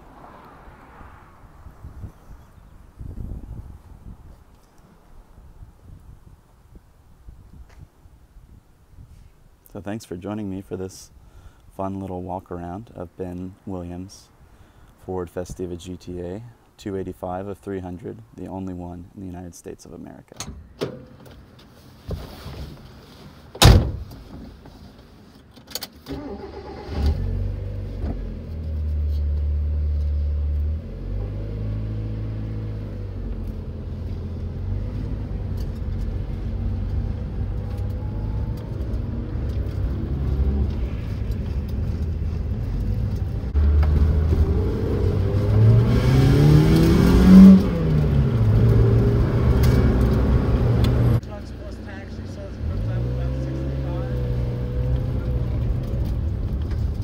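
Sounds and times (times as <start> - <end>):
car door slamming: 23.6 - 24.1
car engine starting and idling: 26.0 - 57.0
car engine accelerating: 26.4 - 57.0.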